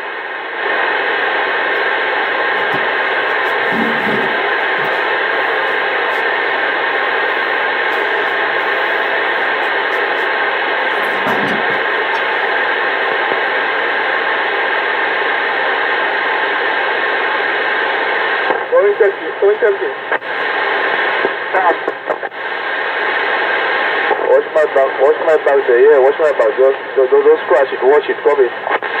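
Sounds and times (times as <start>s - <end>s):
radio static rush: 0.0s - 16.8s, 17.6s - 29.0s
low voice murmur: 2.6s - 6.3s, 7.9s - 12.4s.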